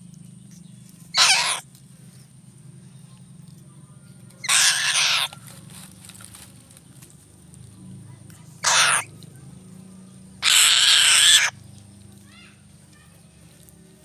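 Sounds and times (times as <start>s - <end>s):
steady low hum: 0.0s - 14.0s
eagle screaming calls: 1.1s - 1.6s, 4.4s - 5.4s, 8.6s - 9.1s, 10.4s - 11.6s.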